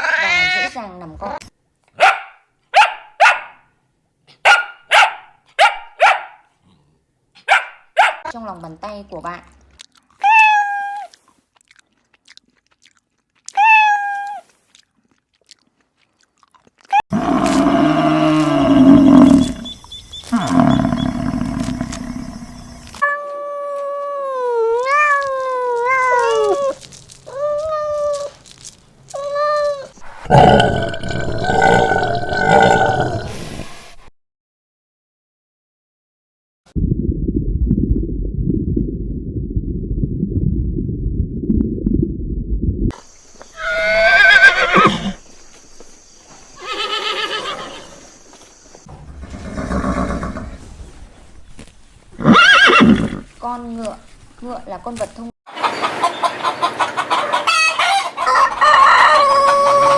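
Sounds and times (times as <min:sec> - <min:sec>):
horse whinnying: 0:17.2 - 0:22.3, 0:43.6 - 0:45.2, 0:46.6 - 0:48.0, 0:49.2 - 0:50.6, 0:52.2 - 0:53.3
cat meowing and yowling: 0:23.0 - 0:28.3.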